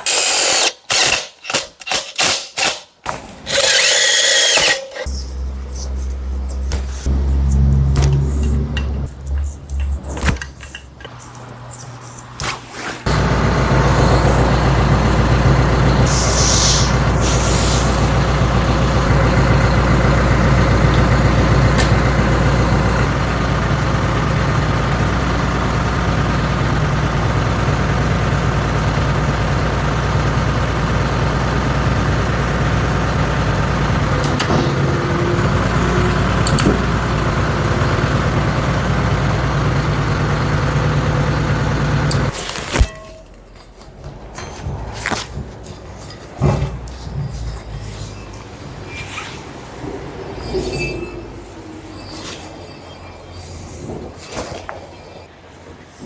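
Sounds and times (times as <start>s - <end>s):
engine running steadily: 5.0s - 11.4s, 13.1s - 42.9s
short air hisses: 16.1s - 18.1s.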